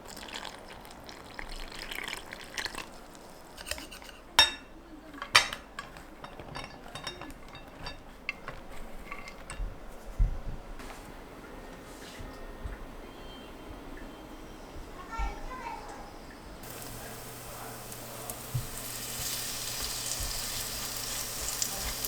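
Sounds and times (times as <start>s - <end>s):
dishes and utensils clattering: 3.6s - 10.0s, 16.6s - 22.0s.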